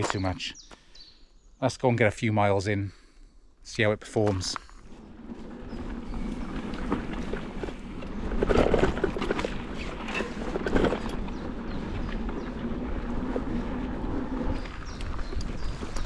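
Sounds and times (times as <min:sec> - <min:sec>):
bike tyre and road noise: 0:04.5 - 0:16.0
bike rattles: 0:04.8 - 0:16.0
wind on microphone: 0:05.1 - 0:16.0.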